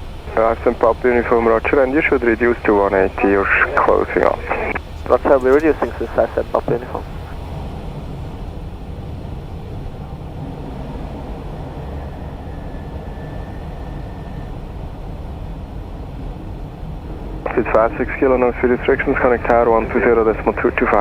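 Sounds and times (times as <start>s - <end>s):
cockpit airflow and engine rumble: 0.0s - 21.0s
faint thin tone: 12.0s - 14.7s.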